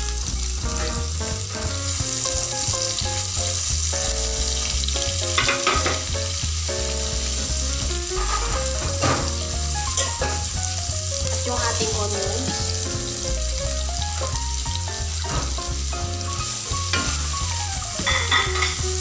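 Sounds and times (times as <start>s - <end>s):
garlic sizzling in a pan: 0.0s - 19.0s.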